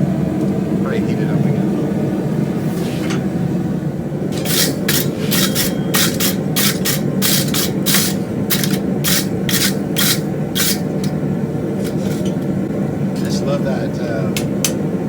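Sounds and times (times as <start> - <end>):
gas forge rumbling: 0.0 - 15.0
hand tool scraping steel: 4.3 - 11.2, 11.8 - 12.4.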